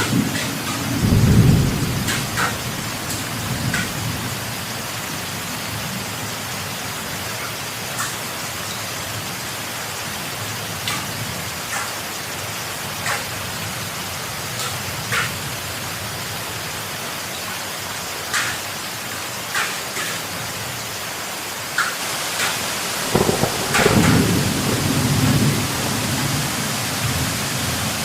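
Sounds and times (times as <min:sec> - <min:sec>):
thunder rumbling: 0:00.0 - 0:04.4, 0:23.1 - 0:28.0
heavy rain: 0:00.0 - 0:28.0.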